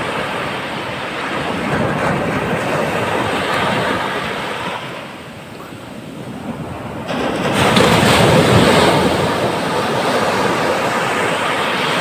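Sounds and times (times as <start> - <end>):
whitewater washing: 0.0 - 12.0
wave breaking: 5.8 - 12.0.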